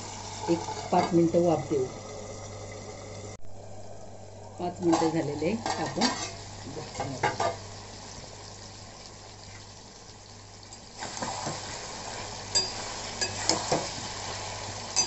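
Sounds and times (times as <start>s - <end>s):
meat sizzling in gravy: 4.9s - 15.0s.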